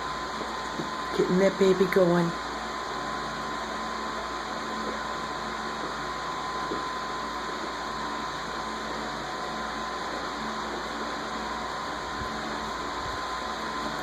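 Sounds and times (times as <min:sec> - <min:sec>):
constant high hum: 0:00.0 - 0:14.0
steady whirring noise: 0:00.0 - 0:14.0.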